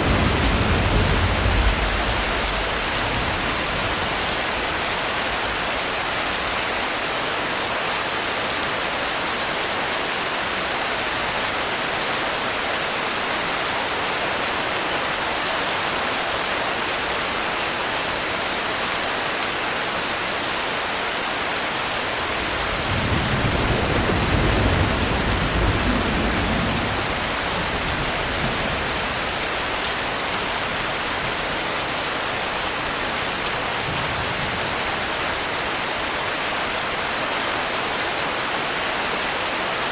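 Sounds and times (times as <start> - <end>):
distant thunder rumble: 0.0 - 6.0, 22.2 - 31.6
steady rainfall: 0.0 - 39.9.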